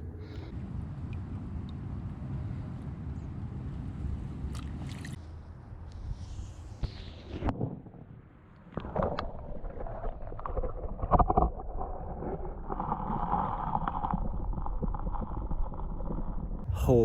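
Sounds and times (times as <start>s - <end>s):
creek water splashing: 4.4s - 5.2s.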